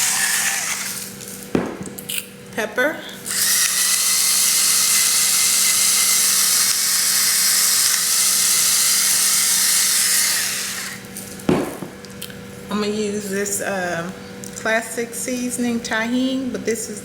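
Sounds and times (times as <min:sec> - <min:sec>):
electric pepper grinder: 0:00.0 - 0:01.5, 0:03.2 - 0:11.5.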